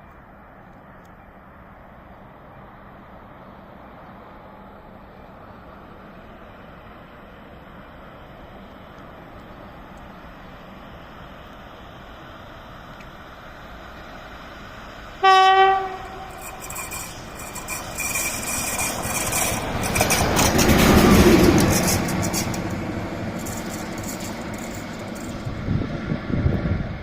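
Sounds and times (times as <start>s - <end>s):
train passing on rails: 0.0s - 27.0s
train horn blast: 15.2s - 16.9s.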